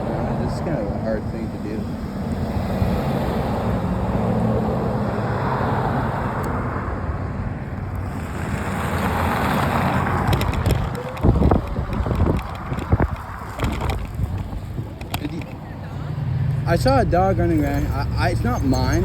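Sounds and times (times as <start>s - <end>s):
wind rushing over microphone: 0.0s - 16.0s
sharp clicks and knocks: 10.1s - 15.6s.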